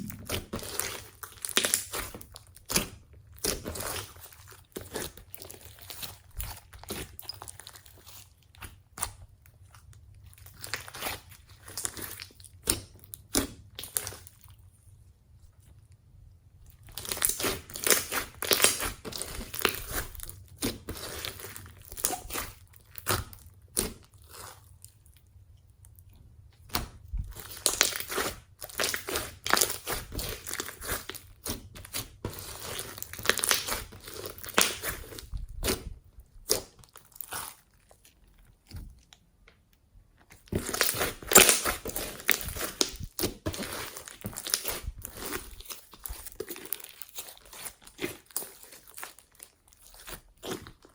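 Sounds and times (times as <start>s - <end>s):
foam slime crackling: 40.5s - 50.9s.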